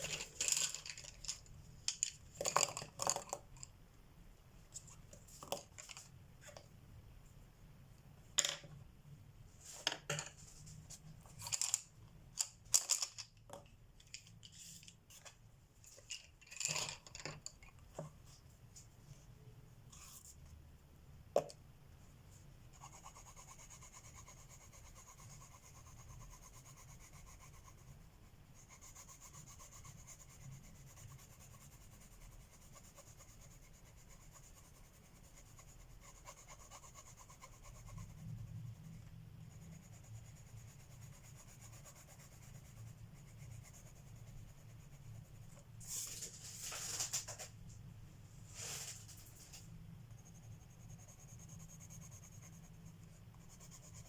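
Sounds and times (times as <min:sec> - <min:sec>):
pencil scratching on paper: 0:22.7 - 0:46.0, 0:50.1 - 0:54.0.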